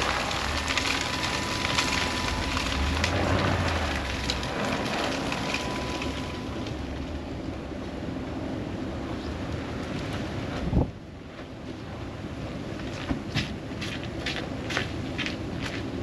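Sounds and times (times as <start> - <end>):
snow and ice pattering in wind: 0.0 - 7.6
vehicle engine humming: 0.0 - 11.2.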